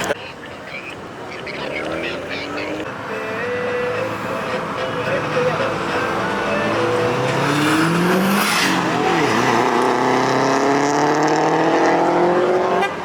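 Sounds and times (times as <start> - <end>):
car engine accelerating: 1.4 - 13.0.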